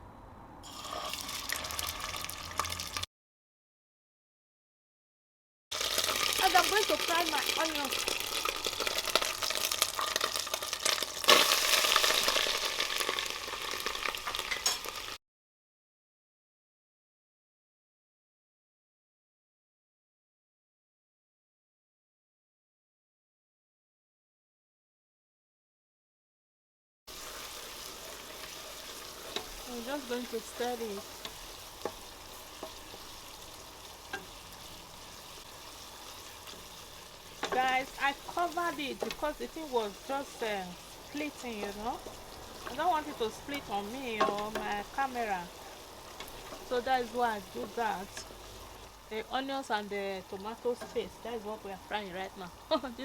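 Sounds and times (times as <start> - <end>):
onions sizzling in hot oil: 0.7 - 3.1, 5.7 - 15.2, 27.1 - 53.0.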